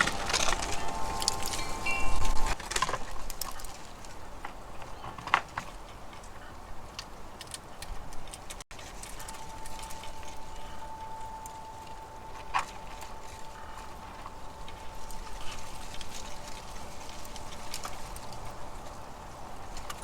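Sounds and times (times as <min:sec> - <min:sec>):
steady ringing tone: 0:00.0 - 0:02.6, 0:08.9 - 0:18.8.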